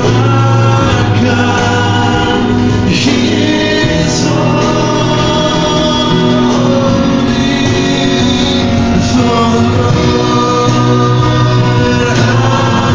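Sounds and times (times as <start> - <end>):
choir singing gospel music: 0.0 - 12.9.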